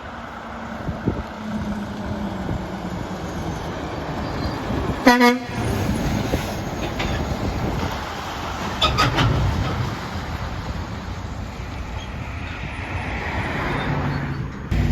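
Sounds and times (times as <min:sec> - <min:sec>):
truck road rumble: 0:00.0 - 0:14.9
truck horn blast: 0:05.0 - 0:05.8.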